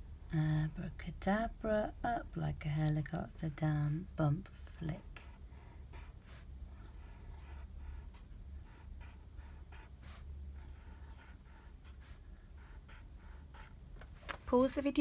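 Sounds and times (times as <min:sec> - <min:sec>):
low steady hum: 0:00.0 - 0:15.0
pen scratching while writing: 0:04.8 - 0:13.8.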